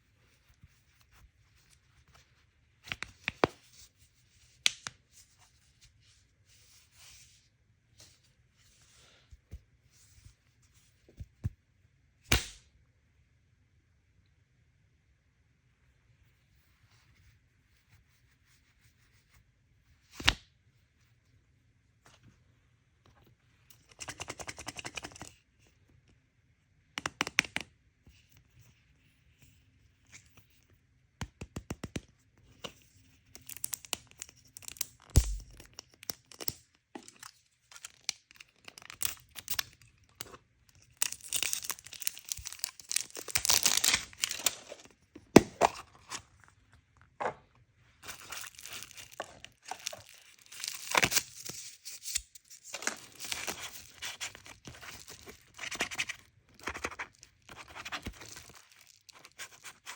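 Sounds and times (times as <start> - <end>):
packaging tearing and crinkling: 40.9 - 46.2, 48.0 - 56.0.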